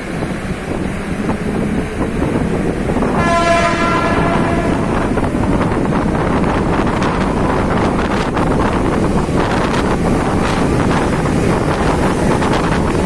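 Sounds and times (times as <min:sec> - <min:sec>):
train rumble and rattle: 0:00.0 - 0:13.0
wheels clacking over rails: 0:00.0 - 0:13.0
train horn: 0:02.9 - 0:06.3.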